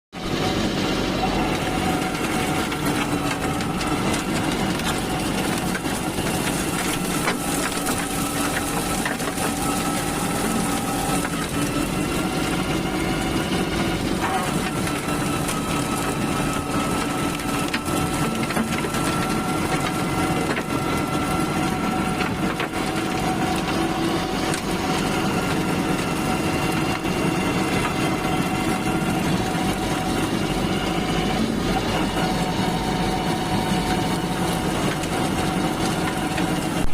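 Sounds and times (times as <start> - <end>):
tractor engine running: 0.1 - 36.9
brush cutter shredding scrub: 0.2 - 36.9
brush and wood crackling: 1.8 - 31.3.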